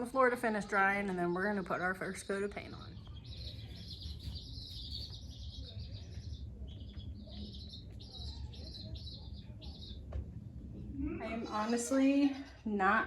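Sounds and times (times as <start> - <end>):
baby chicks peeping: 0.0 - 13.0
low steady rumble: 0.0 - 13.0.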